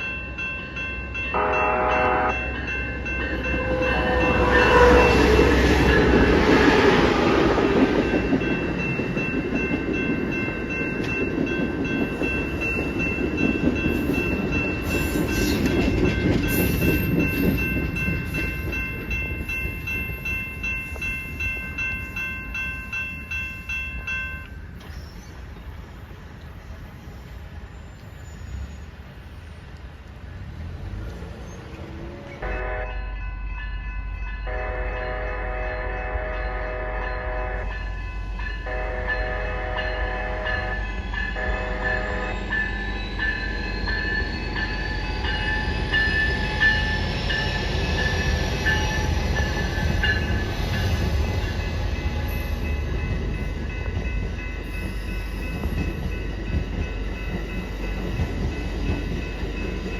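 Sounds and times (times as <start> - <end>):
train rumbling on rails: 0.0 - 59.9
train horn blasts: 1.3 - 2.6, 3.3 - 7.4, 32.1 - 33.1, 34.4 - 37.9, 38.6 - 42.5.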